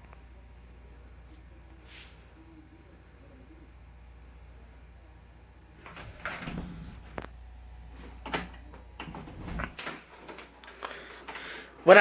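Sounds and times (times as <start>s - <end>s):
low electrical hum: 0.0s - 12.0s
knocks and clicks of handling: 8.1s - 11.6s.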